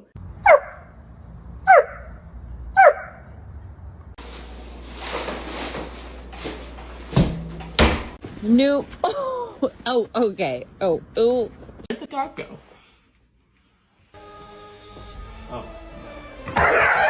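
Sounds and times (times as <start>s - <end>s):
dog barking: 0.4s - 0.9s, 1.7s - 2.2s, 2.8s - 3.3s.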